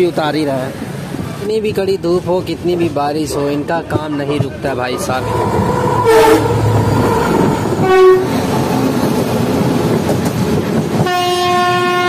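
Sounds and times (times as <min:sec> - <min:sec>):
train rumbling on rails: 0:00.0 - 0:12.0
locomotive horn blasts: 0:06.0 - 0:06.7, 0:07.8 - 0:08.4, 0:11.0 - 0:12.0.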